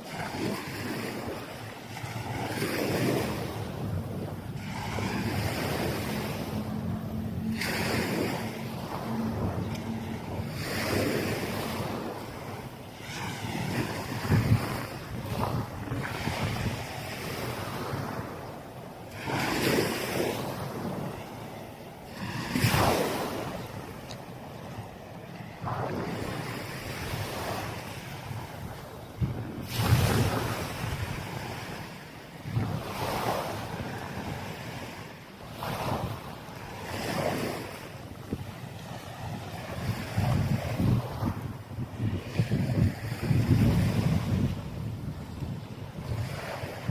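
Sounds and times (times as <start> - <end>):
small waves washing on beach: 0.0 - 46.9
wind buffeting microphone: 0.0 - 46.9.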